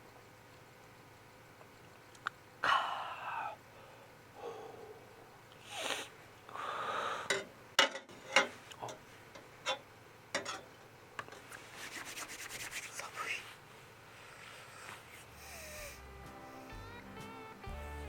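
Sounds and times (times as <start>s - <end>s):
person sniffing and breathing: 2.6s - 7.3s, 11.7s - 16.8s.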